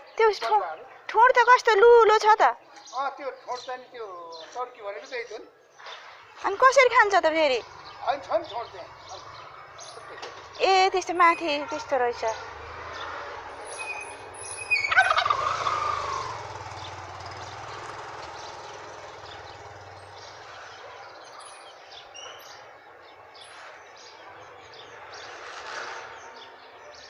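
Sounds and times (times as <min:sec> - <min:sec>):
turkey gobbling: 0:14.7 - 0:16.4.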